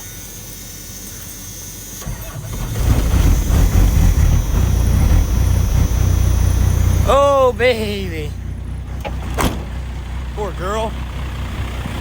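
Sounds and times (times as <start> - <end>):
diesel engine starting and running: 1.8 - 12.0.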